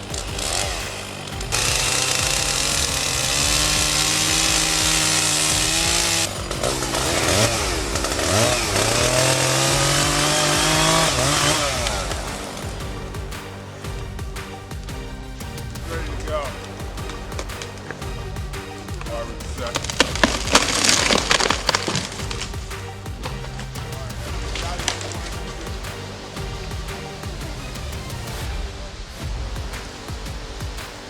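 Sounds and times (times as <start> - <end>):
chainsaw revving: 0.0 - 14.2, 14.8 - 28.5
background music: 0.0 - 31.0
loud hiss: 0.0 - 31.0.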